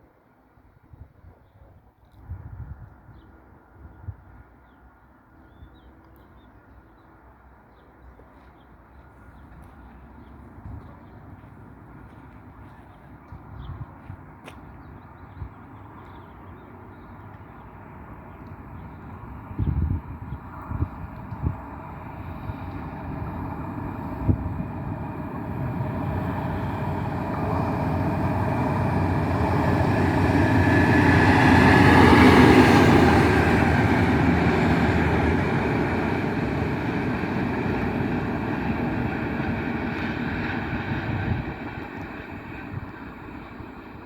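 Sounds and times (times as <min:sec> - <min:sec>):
locomotive passing by: 0:15.1 - 0:44.0.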